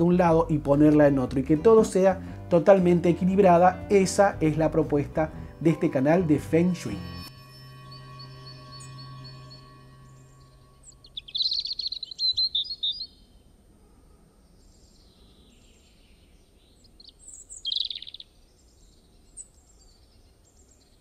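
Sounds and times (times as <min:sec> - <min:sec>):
songbird twittering trills: 0:06.9 - 0:13.5, 0:14.5 - 0:21.0
faint bird chirps: 0:07.5 - 0:21.0.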